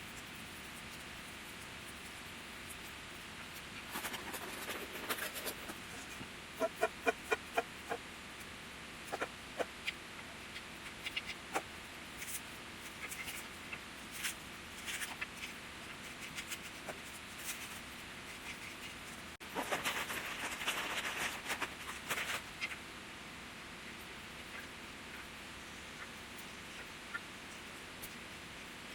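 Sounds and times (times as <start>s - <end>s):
rustling: 0.0s - 6.7s, 10.8s - 22.8s
small clicks and crackles: 0.0s - 22.8s.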